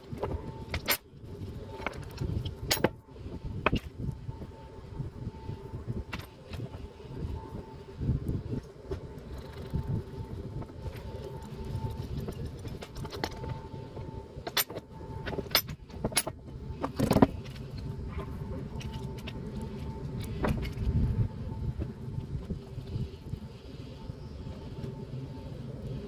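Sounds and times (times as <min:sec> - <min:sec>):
steady low hum: 0:00.0 - 0:26.0
metallic clinks and knocks: 0:14.4 - 0:17.6.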